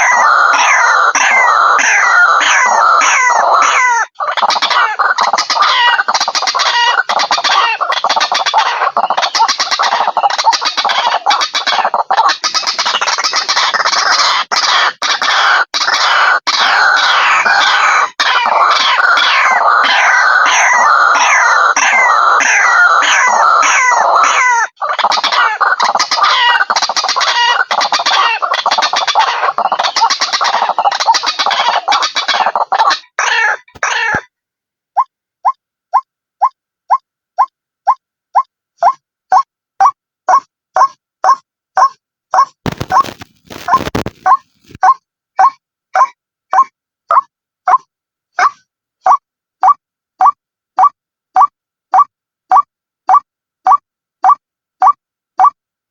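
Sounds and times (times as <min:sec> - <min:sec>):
waterhen calling harshly: 0:00.0 - 0:34.3.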